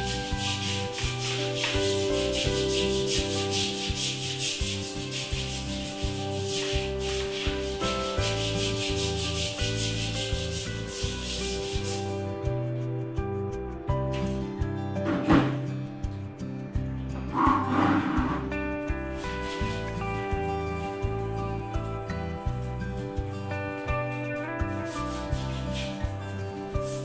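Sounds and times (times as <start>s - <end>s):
brush scrubbing a hard surface: 0.0s - 12.4s, 14.1s - 15.8s, 17.2s - 27.0s
soft background music: 0.0s - 27.0s.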